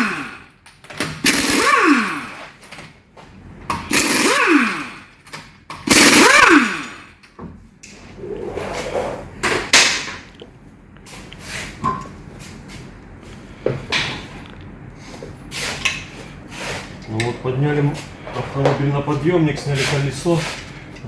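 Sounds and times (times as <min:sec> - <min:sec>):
impact wrench whining: 0:00.0 - 0:02.8, 0:03.6 - 0:07.4.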